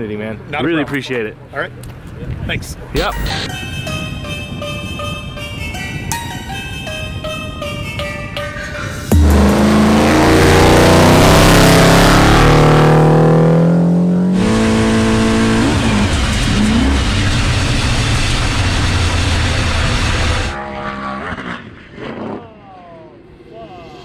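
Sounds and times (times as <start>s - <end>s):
engine winding down: 8.7s - 21.8s
racing engine accelerating: 9.1s - 22.4s.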